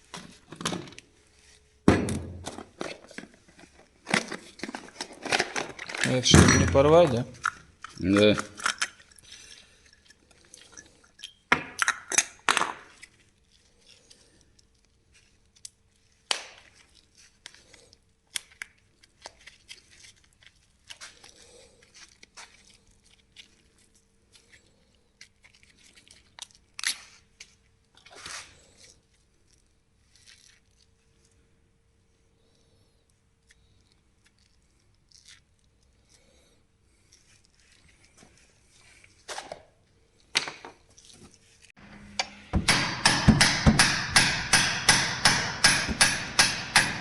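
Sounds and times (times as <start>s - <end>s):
hand tools clicking and scraping: 2.4s - 12.4s, 41.1s - 47.0s
sharp knocks: 42.0s - 47.0s.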